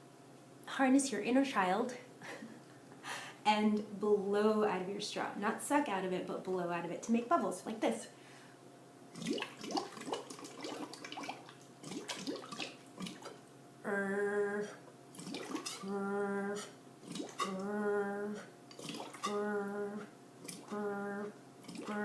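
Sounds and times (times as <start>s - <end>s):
bubbles blown through a straw: 9.2s - 13.3s, 15.2s - 15.9s, 17.0s - 17.8s, 18.7s - 19.5s, 21.6s - 22.0s
woman humming: 13.8s - 14.8s, 15.8s - 16.8s, 17.4s - 18.5s, 19.2s - 22.0s.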